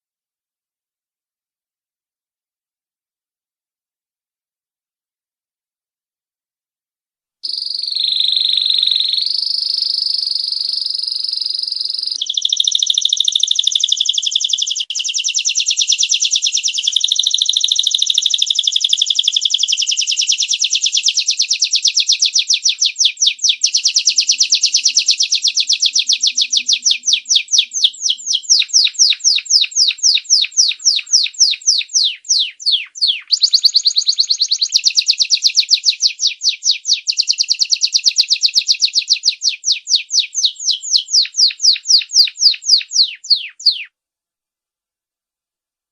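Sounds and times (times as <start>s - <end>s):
canary singing and trilling: 7.4s - 43.9s.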